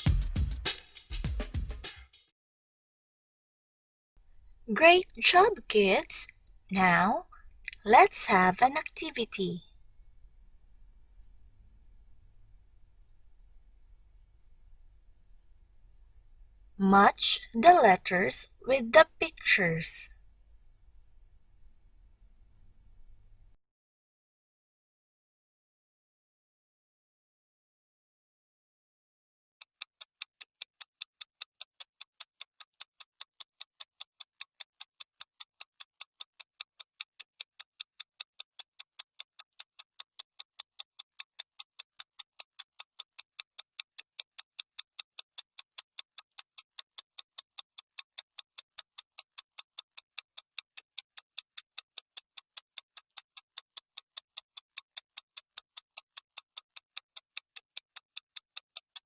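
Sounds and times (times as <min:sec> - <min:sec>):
clock ticking quickly: 0:04.7 - 0:20.1.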